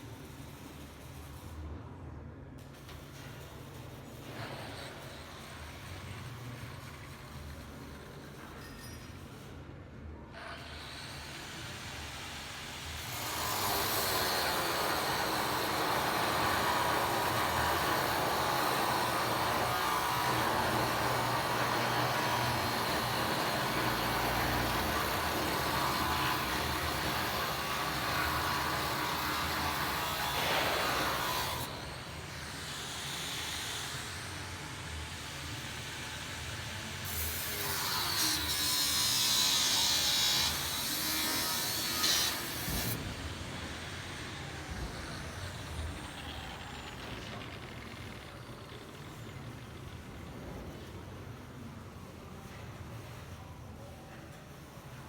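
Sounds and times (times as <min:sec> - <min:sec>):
power tool cutting metal: 0:10.5 - 0:50.2.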